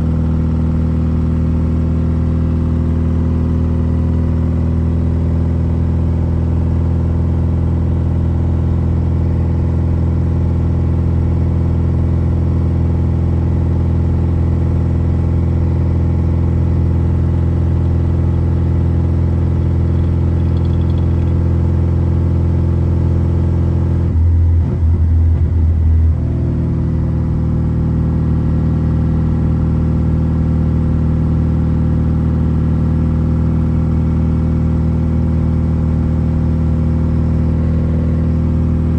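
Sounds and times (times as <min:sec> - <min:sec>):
car engine droning: 0:13.7 - 0:31.2.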